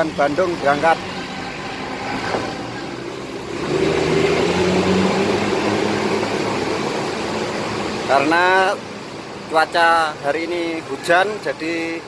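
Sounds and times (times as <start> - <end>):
bus engine pulling away: 0.0 - 8.2.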